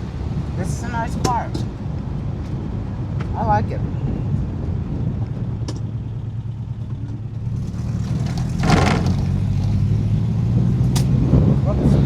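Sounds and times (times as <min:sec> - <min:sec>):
car engine from inside cabin: 0:07.4 - 0:10.6.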